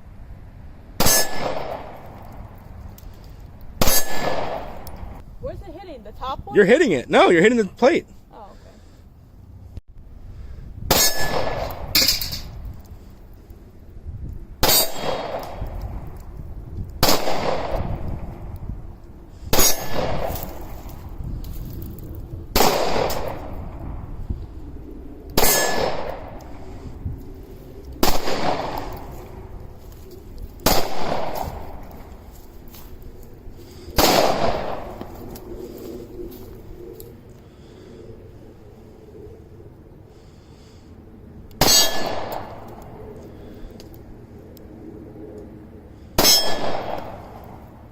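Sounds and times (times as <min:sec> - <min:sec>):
steel plate target clanging: 0:01.0 - 0:01.6, 0:10.9 - 0:12.5, 0:25.4 - 0:26.0, 0:41.6 - 0:42.1, 0:46.2 - 0:46.7
pistol shots: 0:03.8 - 0:05.0, 0:10.9 - 0:12.0, 0:14.6 - 0:15.6, 0:17.0 - 0:17.9, 0:19.5 - 0:20.5, 0:22.5 - 0:23.5, 0:28.0 - 0:29.1, 0:30.6 - 0:31.8, 0:34.0 - 0:35.0, 0:41.6 - 0:42.6.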